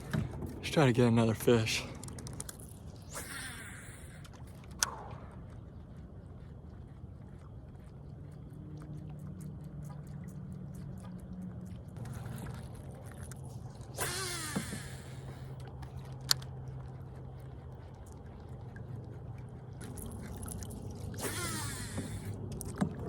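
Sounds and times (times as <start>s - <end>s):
steady low hum: 0.0s - 23.0s
fishing line whirring off reel: 3.0s - 5.0s, 13.9s - 15.5s, 21.2s - 22.4s.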